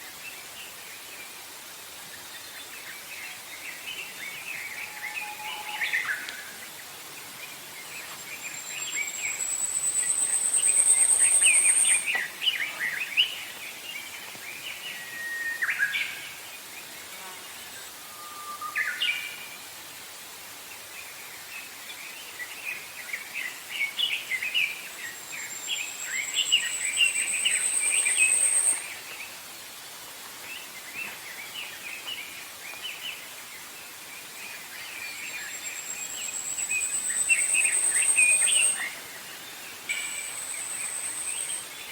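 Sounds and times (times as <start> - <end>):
faint outdoor ambience hiss: 0.0 - 41.9
songbirds twittering: 2.1 - 18.0, 21.0 - 29.7, 30.4 - 41.9.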